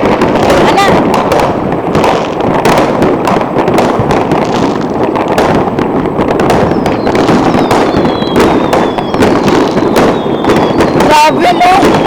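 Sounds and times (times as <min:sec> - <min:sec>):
fireworks and firecrackers crackling: 0:00.0 - 0:12.0.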